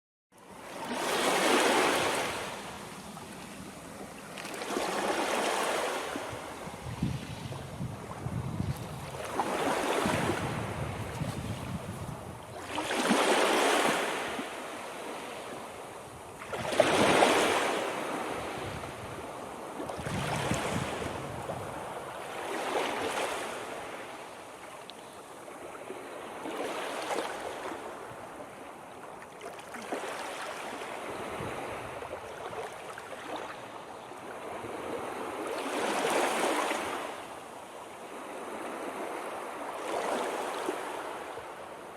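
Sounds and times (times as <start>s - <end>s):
ocean waves breaking: 0.5s - 24.4s, 29.6s - 37.4s.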